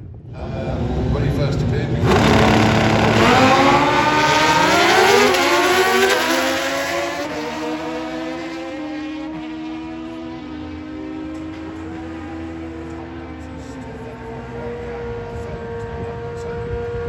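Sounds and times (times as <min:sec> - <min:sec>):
motorcycle accelerating hard: 0:02.0 - 0:13.0.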